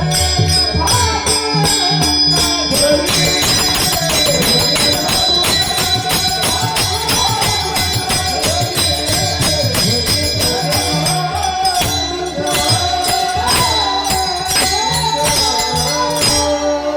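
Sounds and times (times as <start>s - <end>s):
devotional song: 0.0s - 16.9s
hand cymbals jingling: 0.0s - 16.9s.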